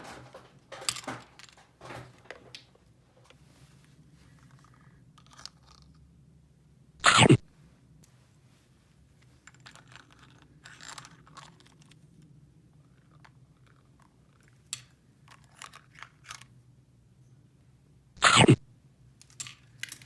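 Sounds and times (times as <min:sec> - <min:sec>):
toy pieces clicking and rustling: 0:04.4 - 0:05.9, 0:09.4 - 0:12.0, 0:12.9 - 0:16.5.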